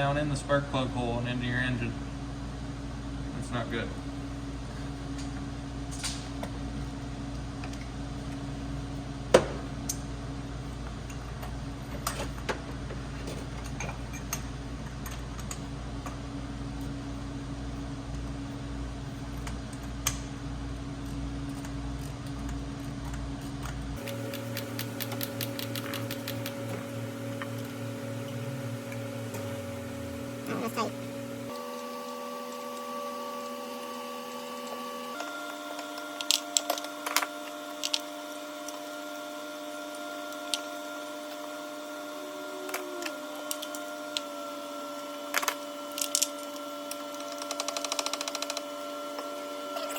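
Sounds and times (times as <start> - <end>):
mechanical hum: 0.0 - 49.9.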